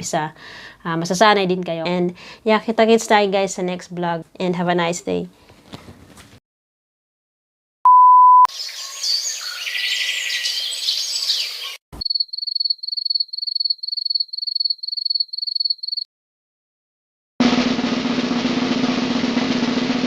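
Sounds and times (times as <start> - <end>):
censor beep: 7.9 - 8.5
bird chirping: 8.5 - 16.0.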